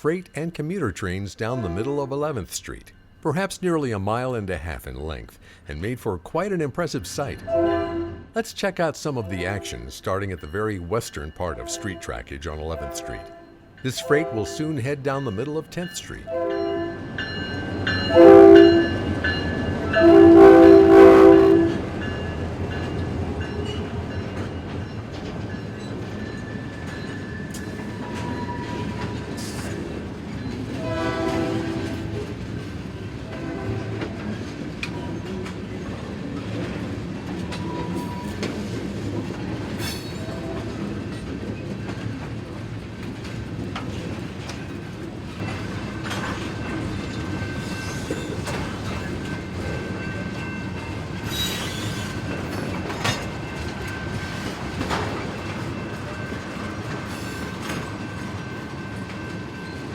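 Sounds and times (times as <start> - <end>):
train rumbling along track: 0.6 - 59.9
locomotive horn blasts: 1.4 - 2.1, 7.5 - 8.4, 11.5 - 14.8, 16.3 - 17.1, 18.1 - 19.2, 19.9 - 22.0, 30.8 - 32.3, 33.3 - 34.3.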